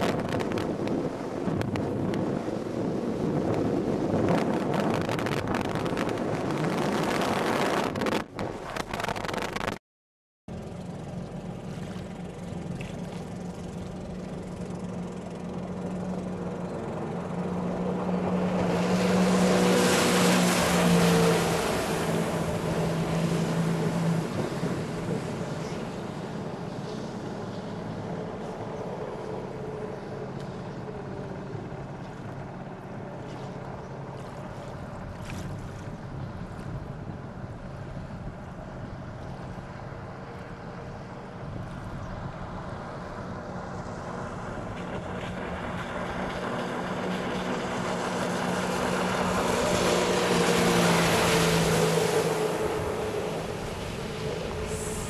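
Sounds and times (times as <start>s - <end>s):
jet ski engine running: 0.0s - 9.8s, 10.5s - 55.0s
water noise: 0.0s - 9.8s, 10.5s - 55.0s
wind on microphone: 0.0s - 9.8s, 33.3s - 40.2s, 44.0s - 55.0s
rush of water spray: 18.2s - 28.0s, 44.0s - 55.0s
rushing water hiss: 53.4s - 55.0s.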